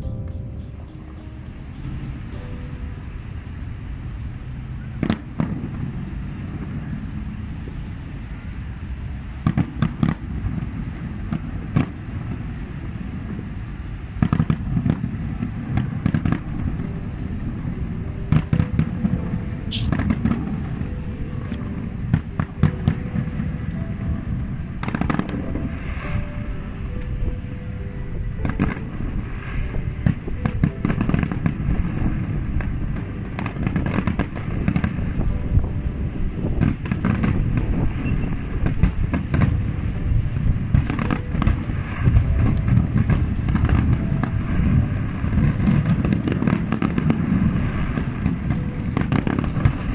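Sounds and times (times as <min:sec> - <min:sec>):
low rumble: 0:00.0 - 0:06.1
fireworks bangs: 0:00.0 - 0:07.1, 0:14.1 - 0:26.4, 0:28.4 - 0:35.7, 0:36.4 - 0:49.9.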